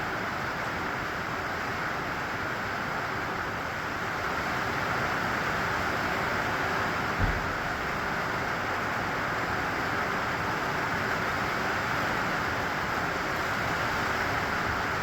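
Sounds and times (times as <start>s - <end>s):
steady rain hiss: 0.0s - 15.0s
low thump: 7.2s - 7.9s.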